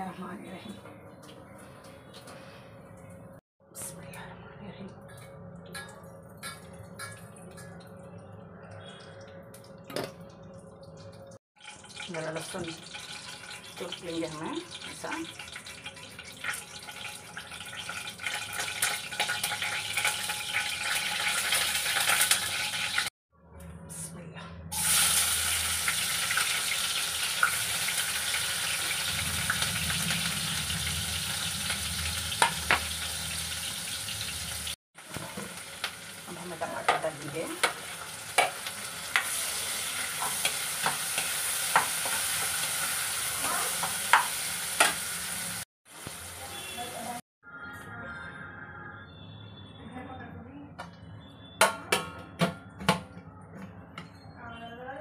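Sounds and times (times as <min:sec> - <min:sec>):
vegetables sizzling in hot oil: 0:11.6 - 0:23.1, 0:24.7 - 0:47.2
spoon stirring against pan: 0:36.6 - 0:45.0.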